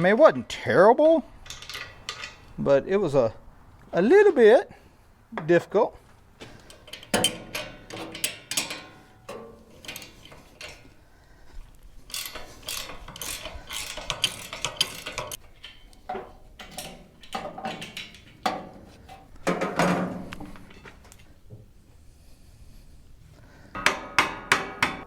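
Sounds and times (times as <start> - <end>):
ratchet wrench clicking: 12.1 - 15.8.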